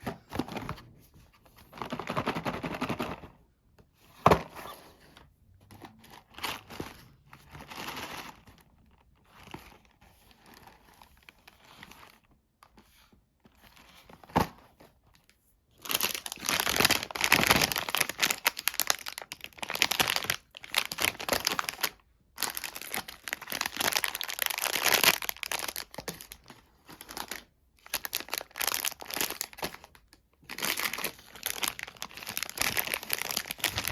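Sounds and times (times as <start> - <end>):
wrapper crinkling and tearing: 15.8 - 33.9.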